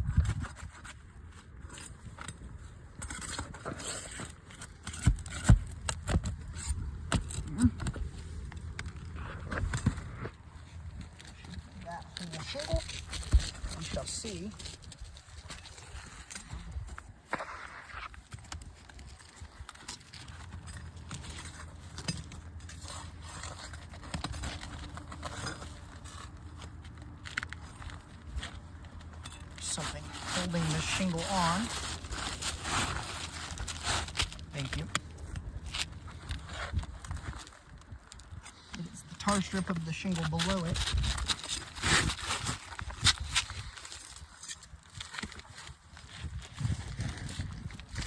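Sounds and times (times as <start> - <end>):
tool scraping shingles: 0.3 - 8.1, 27.4 - 35.0, 39.3 - 47.2
shingle scraping: 0.3 - 48.0.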